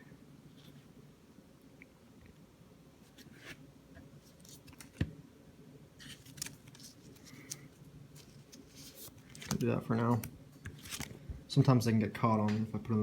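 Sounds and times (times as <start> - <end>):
cards and plastic packaging rustling: 6.0 - 11.3.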